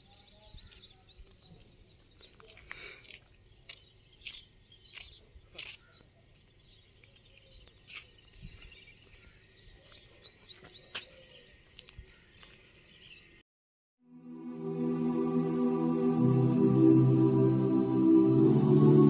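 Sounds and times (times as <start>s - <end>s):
background music: 14.1s - 19.0s.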